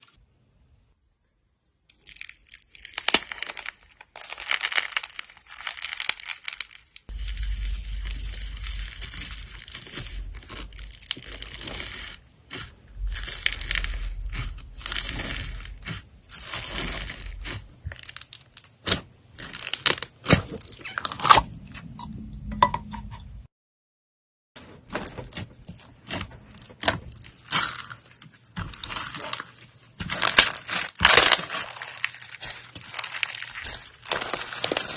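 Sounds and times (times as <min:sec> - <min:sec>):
slime squished by hand: 0:02.8 - 0:21.0, 0:26.0 - 0:34.9.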